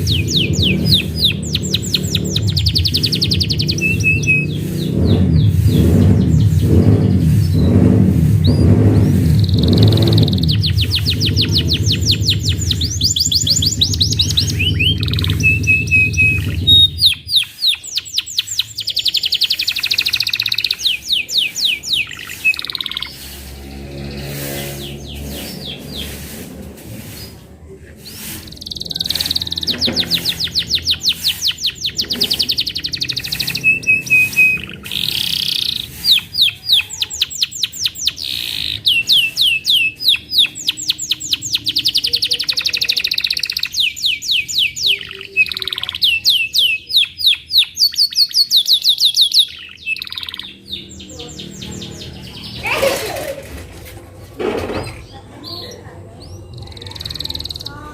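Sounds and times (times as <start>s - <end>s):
canary singing trills: 0.0s - 53.7s, 54.7s - 57.9s.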